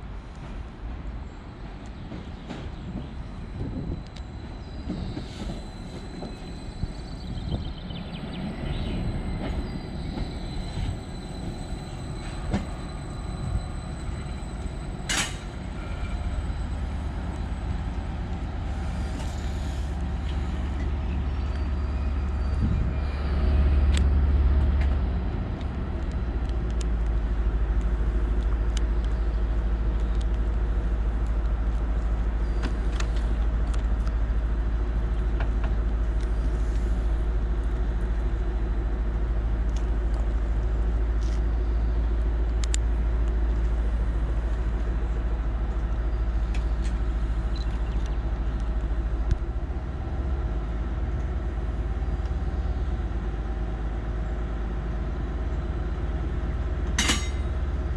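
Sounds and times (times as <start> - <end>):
train engine rumbling: 0.0 - 57.9.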